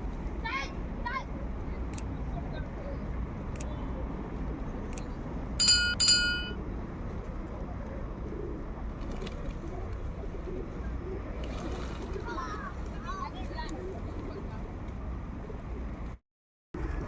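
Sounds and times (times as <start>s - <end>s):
low background hum: 0.0s - 16.2s.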